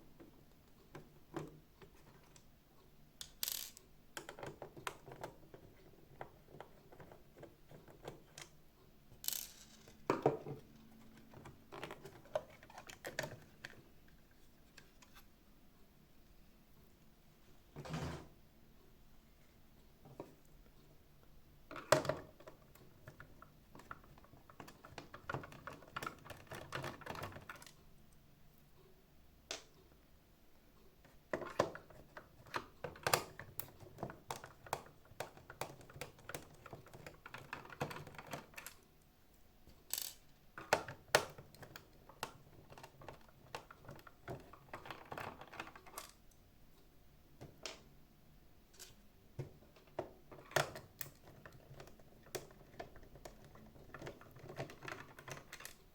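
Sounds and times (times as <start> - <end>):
plastic parts clicking and scraping: 3.2 - 15.3, 21.7 - 27.8, 31.0 - 38.8, 39.9 - 46.3, 48.7 - 55.9.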